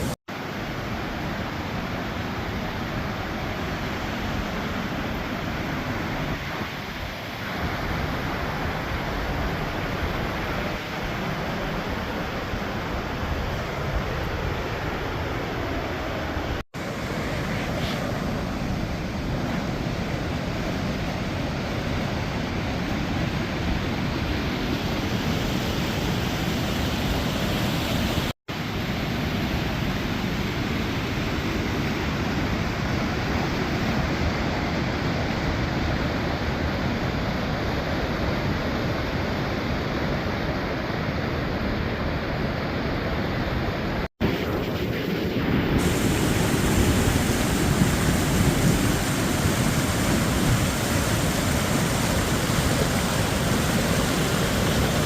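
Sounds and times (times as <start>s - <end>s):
waterfall rushing: 0.0s - 23.6s, 45.8s - 55.0s.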